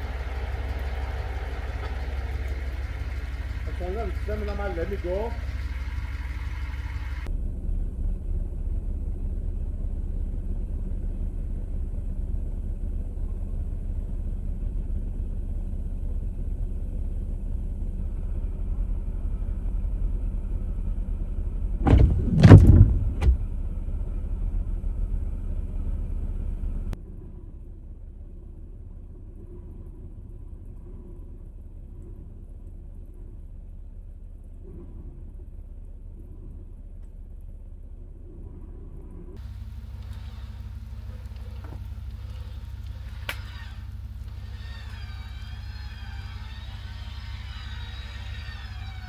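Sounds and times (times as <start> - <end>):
car engine rumbling: 0.0 - 7.3, 39.4 - 49.0
loud bangs: 0.0 - 7.3.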